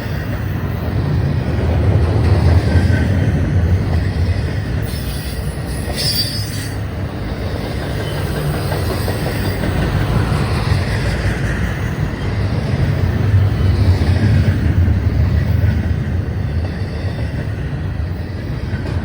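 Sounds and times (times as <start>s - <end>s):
train wheels rumbling on rail: 0.0s - 19.0s
high-pitched wheel squeal: 4.8s - 6.8s.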